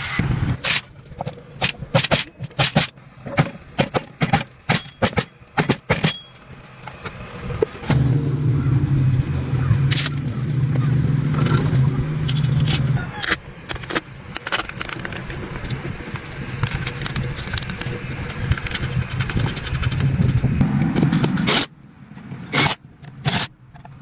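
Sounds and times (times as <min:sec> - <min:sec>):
sharp clicks and knocks: 0:00.2 - 0:24.0
motor running: 0:06.8 - 0:21.7.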